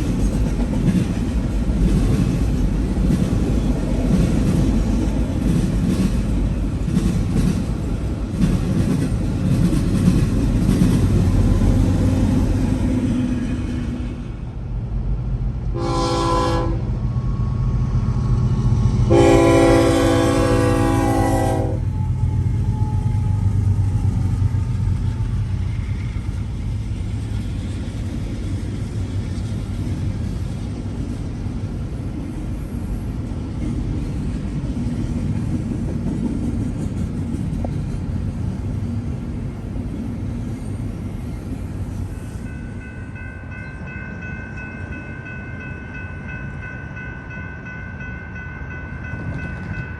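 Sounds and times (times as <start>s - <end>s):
train rumbling past: 0.0s - 49.9s
train horn blasts: 15.7s - 17.6s, 19.0s - 23.3s.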